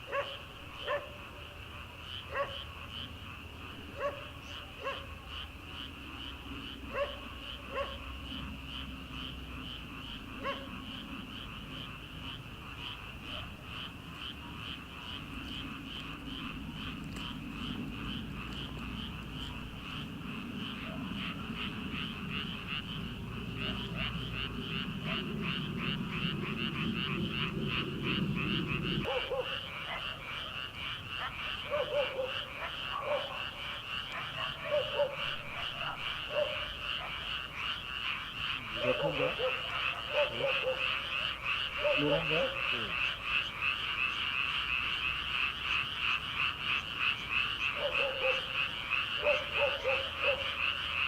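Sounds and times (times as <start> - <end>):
frogs calling: 0.0 - 51.0
low rumble: 15.6 - 29.1.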